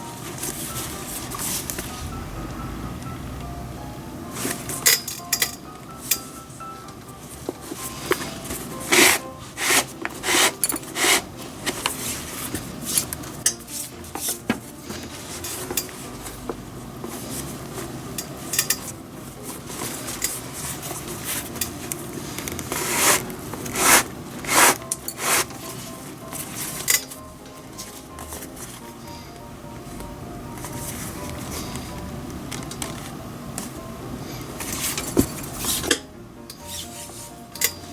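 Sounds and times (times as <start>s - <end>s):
leather lace rubbing: 7.9s - 13.2s, 19.7s - 25.8s
metal lacing tools clicking: 18.2s - 18.9s.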